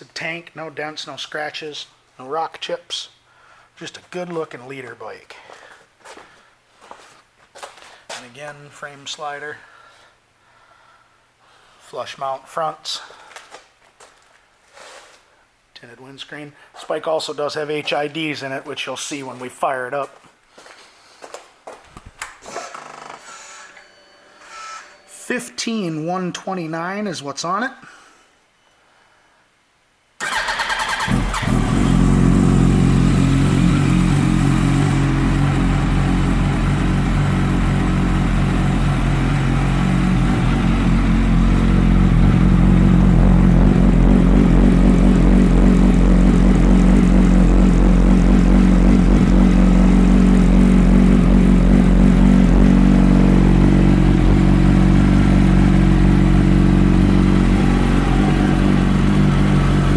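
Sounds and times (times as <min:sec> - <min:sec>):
motorcycle starter turning over: 0:30.2 - 0:31.9
motorcycle engine idling: 0:30.2 - 0:59.9.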